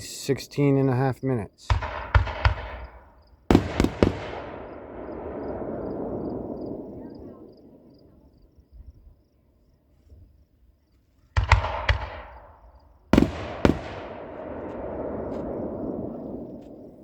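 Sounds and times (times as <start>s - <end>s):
fireworks bangs: 1.7s - 8.1s, 11.3s - 17.0s
rolling echo: 1.7s - 8.5s, 11.3s - 17.0s.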